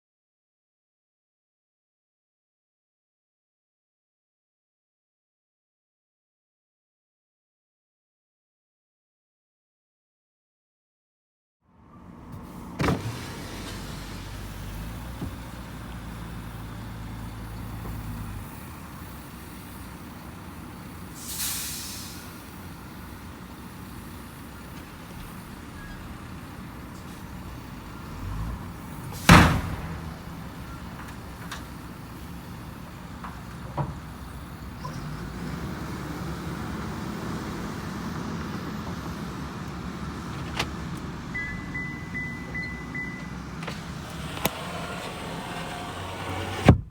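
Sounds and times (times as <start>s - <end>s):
truck engine running: 12.1s - 46.8s
short air hiss: 21.0s - 22.6s
loud sharp air burst or bang: 29.1s - 30.4s.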